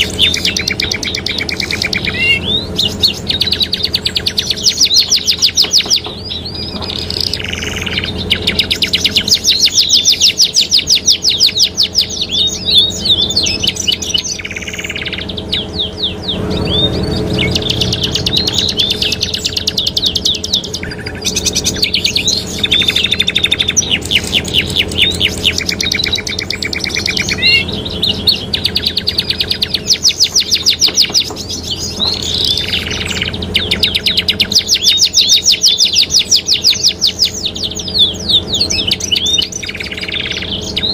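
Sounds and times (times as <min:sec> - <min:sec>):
canaries singing trills: 0:00.0 - 0:40.9.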